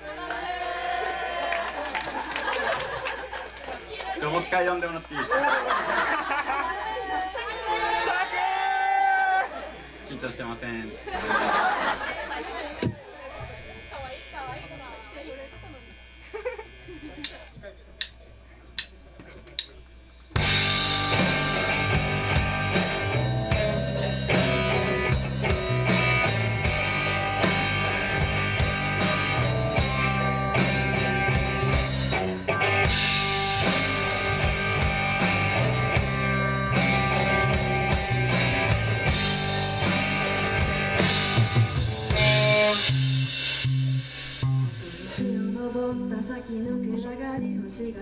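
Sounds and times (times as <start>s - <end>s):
guitar: 11.3s - 48.0s
steady drum beat: 20.3s - 45.2s
bass guitar line: 20.3s - 47.9s.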